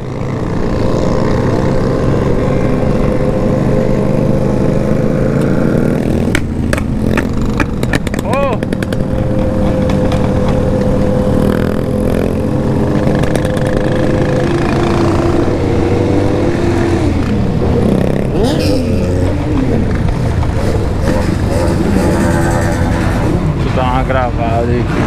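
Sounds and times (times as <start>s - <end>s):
motorcycle engines running: 0.0s - 25.0s.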